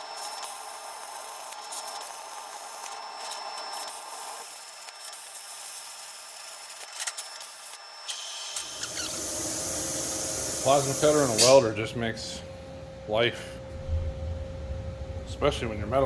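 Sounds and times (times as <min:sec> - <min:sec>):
metal rasping and hissing: 0:08.1 - 0:11.8.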